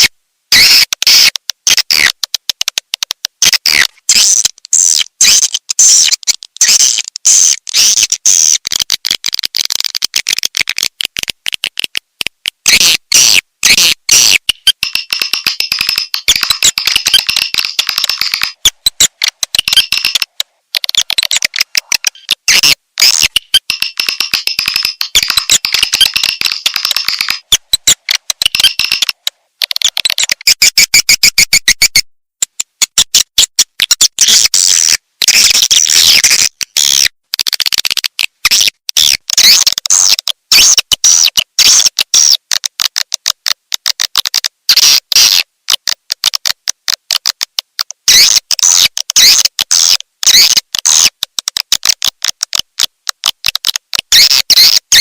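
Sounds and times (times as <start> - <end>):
swiftlet chirps and clicks: 12.8 - 29.2.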